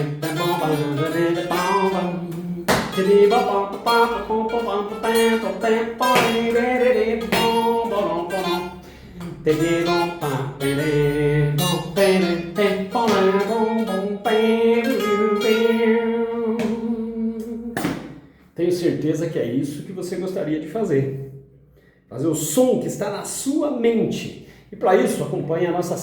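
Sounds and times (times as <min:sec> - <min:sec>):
guitar melody with slides: 0:00.0 - 0:17.2.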